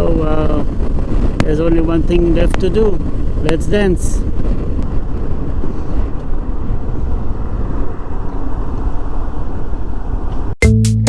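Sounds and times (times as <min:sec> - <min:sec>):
motorcycle road noise: 0:00.0 - 0:10.6
wind rush on microphone: 0:00.0 - 0:10.6.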